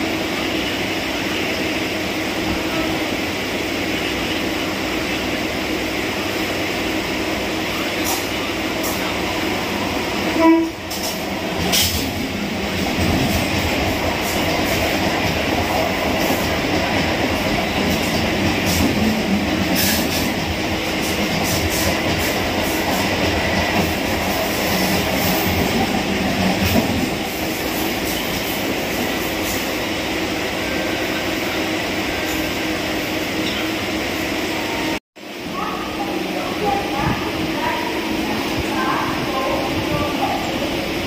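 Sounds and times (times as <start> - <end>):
electric train rumbling on track: 0.0 - 41.0
train jolt: 7.7 - 29.7.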